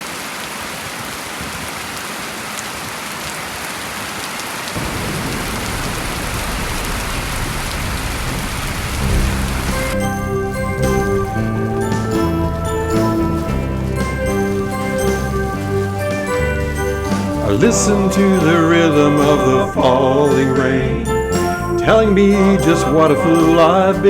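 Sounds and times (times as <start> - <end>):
rain falling: 0.0 - 24.0
low thunder rumble: 4.8 - 23.4
music with bell-like notes: 9.1 - 24.0.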